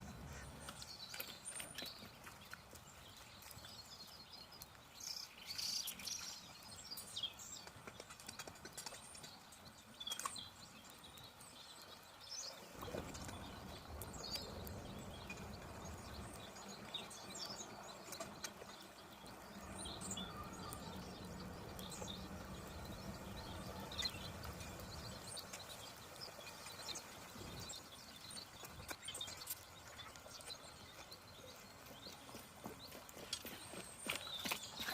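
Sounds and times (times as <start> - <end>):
birds chirping: 0.0 - 34.9
scattered clicks and knocks: 7.5 - 10.4.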